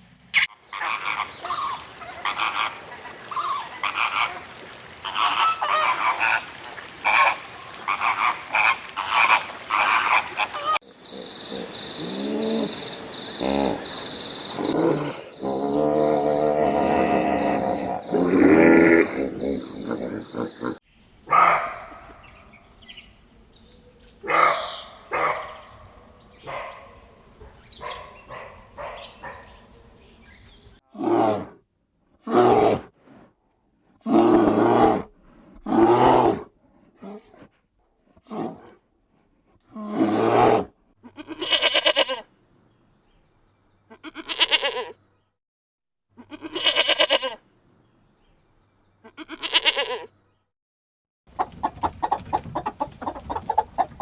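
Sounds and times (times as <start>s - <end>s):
farm animals bleating: 41.0s - 42.2s, 43.9s - 45.0s, 46.2s - 47.4s, 49.0s - 50.1s.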